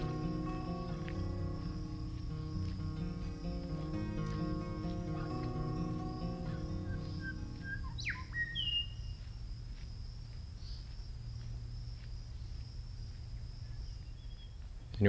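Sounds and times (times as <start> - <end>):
high insect drone: 0.0 - 14.6
birds chirping and whistling: 3.4 - 9.2.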